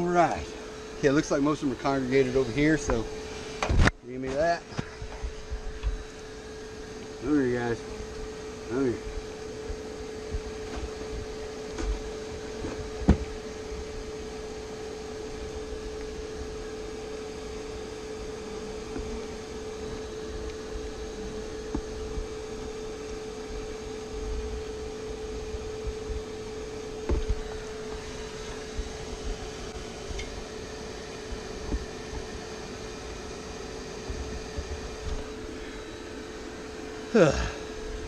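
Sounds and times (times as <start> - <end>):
bee vacuum humming: 0.0 - 38.0.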